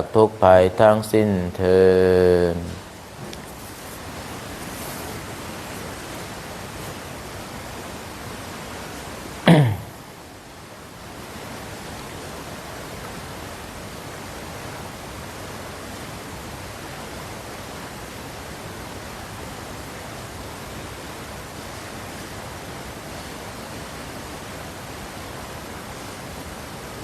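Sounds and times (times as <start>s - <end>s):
steady background hiss: 0.0s - 27.0s.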